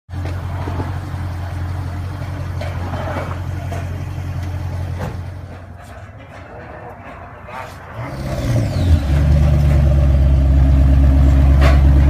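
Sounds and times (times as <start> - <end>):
engine idling deep drone: 7.8 - 12.0.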